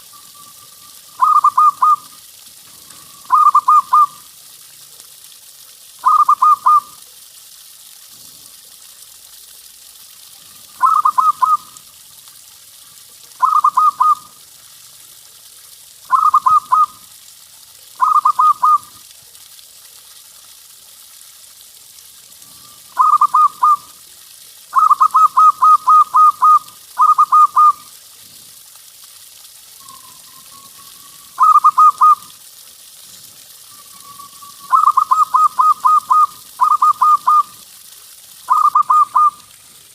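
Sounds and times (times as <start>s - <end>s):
faint steady hiss: 0.0s - 39.9s
dove cooing: 1.2s - 2.1s, 2.9s - 4.2s, 6.0s - 6.8s, 10.8s - 11.6s, 13.4s - 14.2s, 16.1s - 17.0s, 18.0s - 18.9s, 23.0s - 23.8s, 24.8s - 27.8s, 31.4s - 32.2s, 34.6s - 37.5s.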